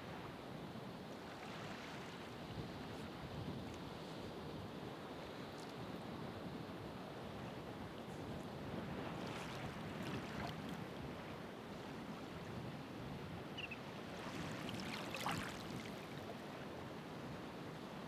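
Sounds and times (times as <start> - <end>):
ocean waves washing ashore: 6.1 - 18.0.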